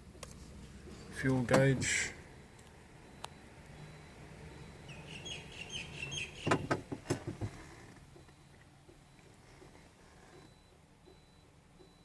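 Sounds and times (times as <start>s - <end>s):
high bird chirps: 4.8s - 6.5s
sharp clicks and knocks: 6.4s - 7.5s.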